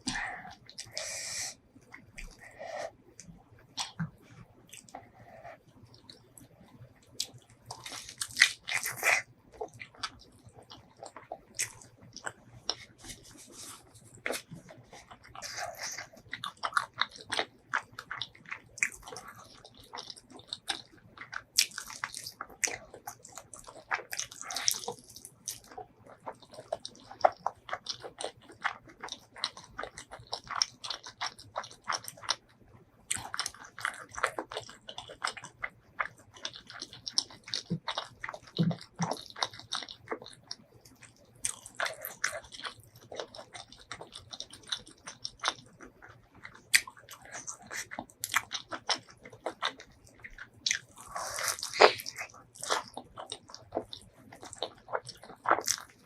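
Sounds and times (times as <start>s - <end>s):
person chewing food: 0.0s - 56.0s
crunchy bites: 41.0s - 56.0s.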